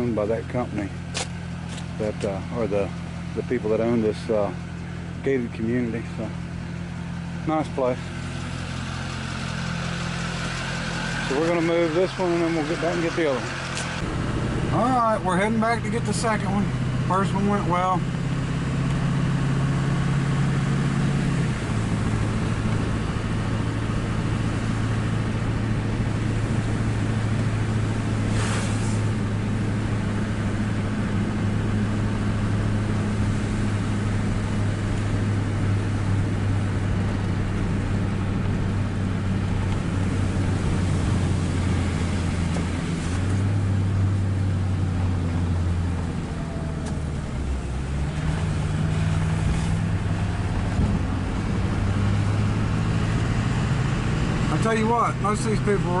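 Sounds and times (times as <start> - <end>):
truck engine droning: 0.0 - 56.0
brief hiss: 28.3 - 29.1.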